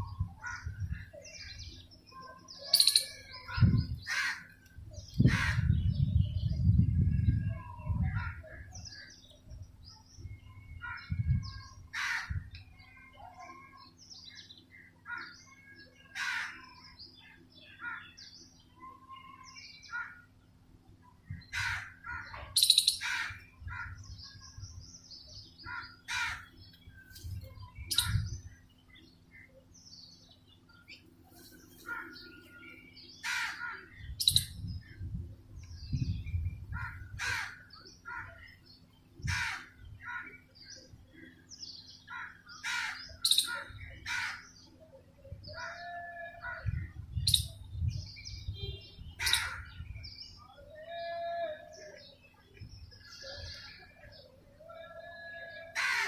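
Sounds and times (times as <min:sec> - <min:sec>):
harsh bird calls: 0:00.0 - 0:09.2, 0:10.4 - 0:20.4, 0:21.4 - 0:35.0, 0:35.6 - 0:56.0
high bird chirps: 0:02.6 - 0:04.0, 0:22.4 - 0:23.1, 0:27.0 - 0:28.5, 0:34.1 - 0:34.8, 0:43.1 - 0:43.8.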